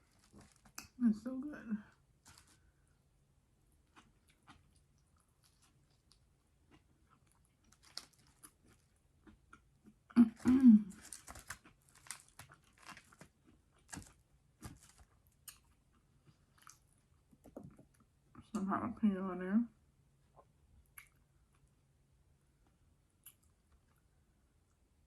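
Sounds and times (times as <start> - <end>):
person chewing and crunching food: 0.0 - 1.0, 2.1 - 3.0, 3.7 - 18.1.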